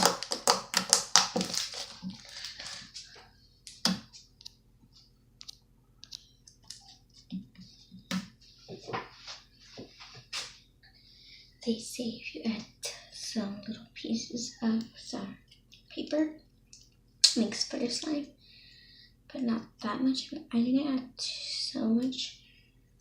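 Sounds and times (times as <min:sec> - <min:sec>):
slime crackling and clicking: 0:00.0 - 0:02.2.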